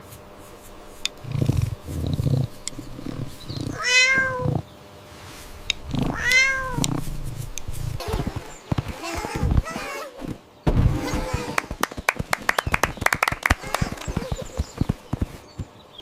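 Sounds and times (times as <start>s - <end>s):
cat meowing: 3.6s - 4.6s, 6.0s - 7.0s
low rumble: 5.2s - 8.7s.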